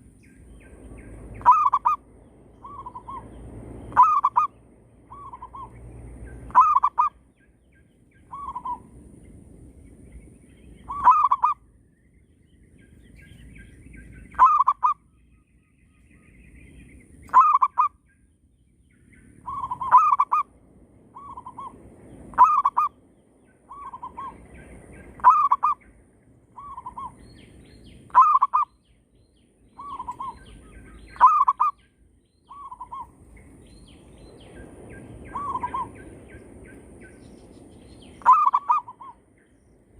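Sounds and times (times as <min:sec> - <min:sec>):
doves cooing: 0:01.4 - 0:02.0, 0:03.9 - 0:05.7, 0:06.5 - 0:07.2, 0:10.9 - 0:11.6, 0:19.5 - 0:20.5, 0:25.2 - 0:25.8, 0:28.1 - 0:28.7, 0:29.8 - 0:31.8, 0:38.2 - 0:39.2.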